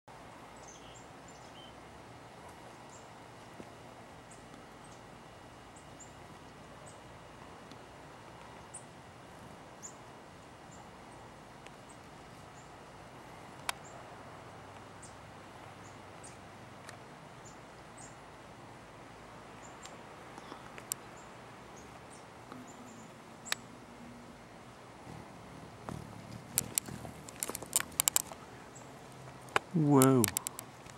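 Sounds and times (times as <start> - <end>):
faint outdoor background: 0.0 - 30.9
songbirds chirping: 0.1 - 30.9
sharp click: 29.5 - 30.6.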